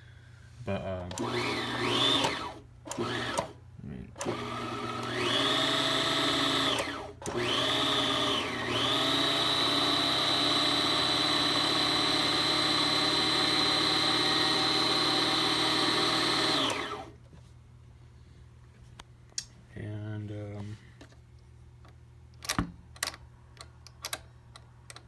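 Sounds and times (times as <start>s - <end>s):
sewing machine motor whining: 1.1s - 3.6s, 4.2s - 17.2s.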